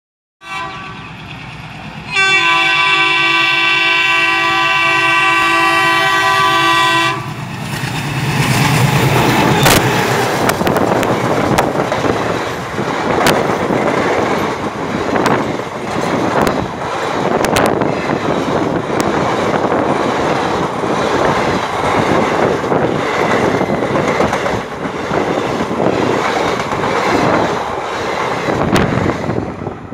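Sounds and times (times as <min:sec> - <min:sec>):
locomotive horn: 0:00.4 - 0:01.1, 0:02.1 - 0:07.4
locomotive rumble: 0:00.8 - 0:29.9
wheels clacking over rail joints: 0:07.3 - 0:29.5.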